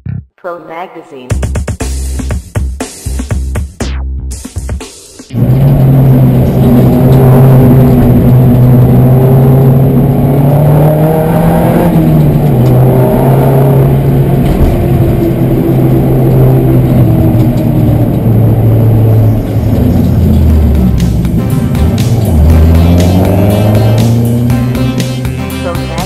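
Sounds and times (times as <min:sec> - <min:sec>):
race car engine revving: 0:05.3 - 0:26.0.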